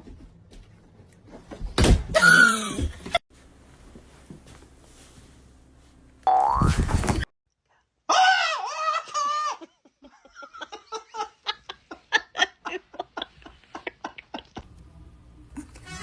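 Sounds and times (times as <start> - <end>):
person laughing: 8.7 - 14.6.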